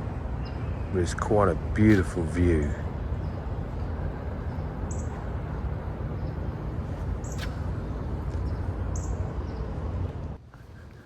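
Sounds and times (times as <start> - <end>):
low outdoor rumble: 0.0 - 11.0
small bird chirping: 3.2 - 9.8.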